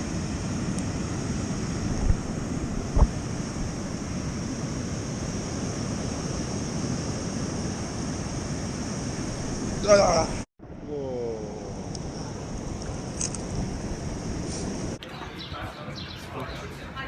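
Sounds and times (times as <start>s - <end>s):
wind: 0.0s - 17.0s
low thumps on microphone: 2.0s - 3.2s.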